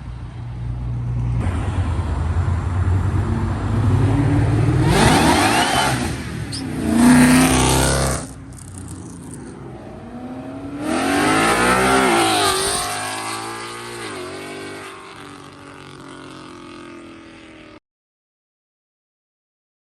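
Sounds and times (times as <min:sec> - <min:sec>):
car engine revving loudly: 0:03.8 - 0:09.4, 0:10.1 - 0:15.5.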